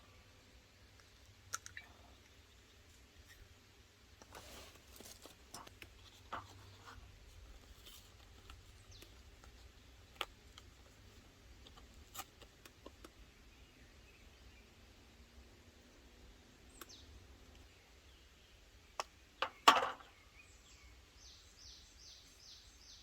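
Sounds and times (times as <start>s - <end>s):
low steady background noise: 0.0s - 23.0s
faint scattered clicks: 0.9s - 2.4s, 16.7s - 17.7s
light scratching: 4.2s - 9.7s.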